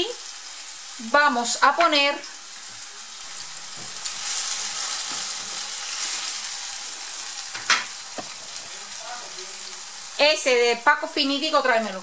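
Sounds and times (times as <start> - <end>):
vegetables sizzling in oil: 0.0 - 12.0
spatula stirring in a pan: 3.6 - 8.8.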